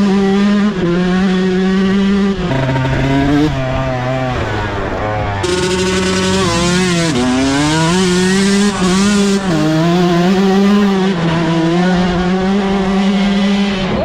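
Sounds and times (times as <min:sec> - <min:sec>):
dirt bike engine at high revs: 0:00.0 - 0:14.0.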